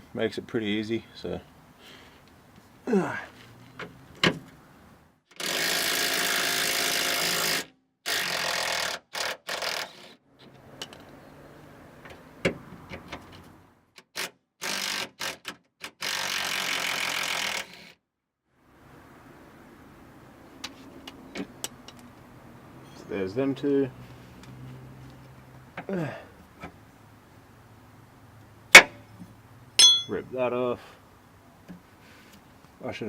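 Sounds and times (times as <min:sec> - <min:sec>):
impact wrench rattling: 0:29.8 - 0:30.2.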